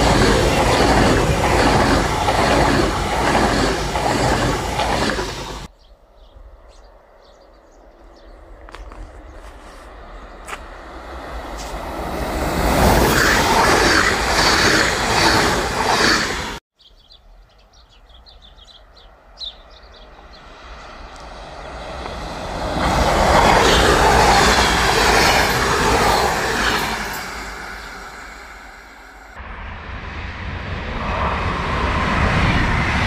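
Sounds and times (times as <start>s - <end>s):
electric multiple unit rolling past: 0.0s - 5.7s, 10.1s - 16.6s, 20.0s - 33.0s
electric train passing: 0.0s - 5.7s, 6.4s - 16.6s, 19.1s - 33.0s.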